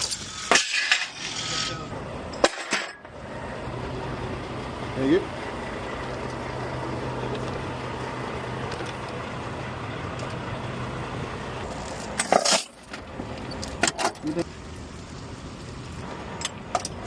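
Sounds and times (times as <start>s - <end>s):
loud metallic clatter: 0.0s - 3.1s
truck engine idling: 0.0s - 17.0s.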